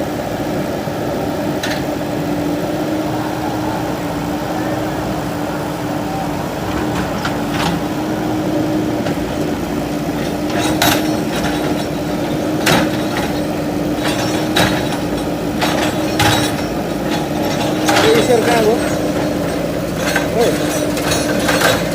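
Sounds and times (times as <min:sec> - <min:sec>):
diesel engine running: 0:00.0 - 0:21.9
knocks and clatter of debris: 0:10.1 - 0:21.9.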